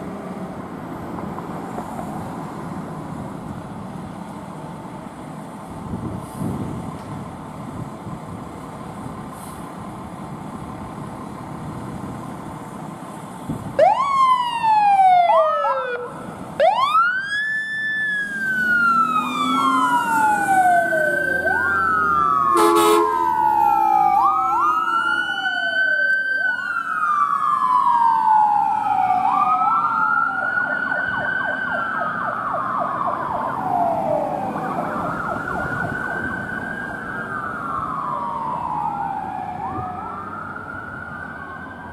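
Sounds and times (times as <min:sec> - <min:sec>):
emergency sirens wailing: 0:00.0 - 0:41.9
engine and traffic noise: 0:00.0 - 0:41.9
horn blast: 0:22.5 - 0:23.3.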